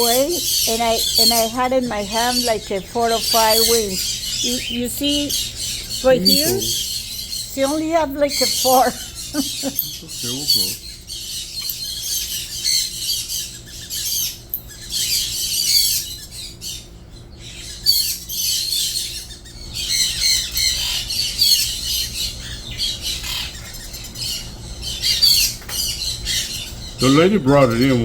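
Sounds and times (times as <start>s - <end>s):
parrot screeching squawks: 17.6s - 25.5s.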